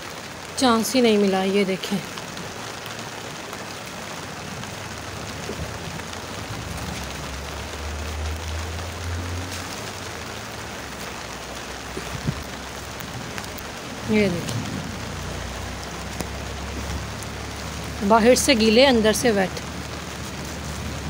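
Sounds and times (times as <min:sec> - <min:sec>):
steady rain falling: 0:00.0 - 0:21.0
low rumble: 0:05.2 - 0:18.1.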